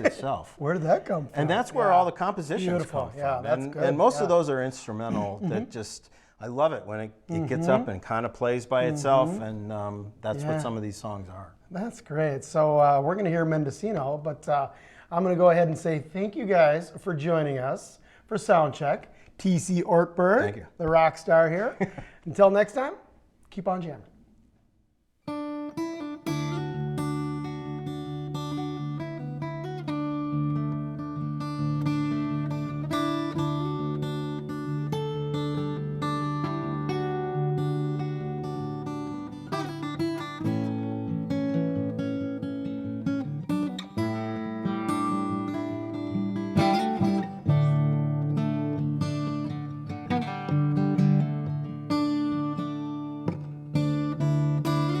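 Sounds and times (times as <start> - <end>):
fingerstyle acoustic guitar: 8.7 - 10.9, 25.2 - 55.0.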